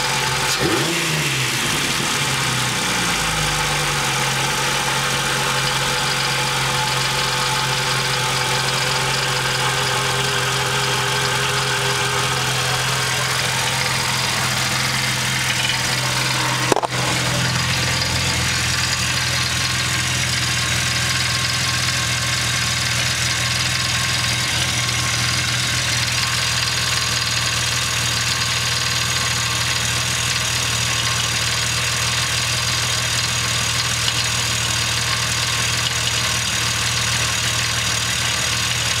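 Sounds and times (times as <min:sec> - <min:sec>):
car engine idling: 0:00.0 - 0:39.0
engine ticking: 0:00.0 - 0:39.0.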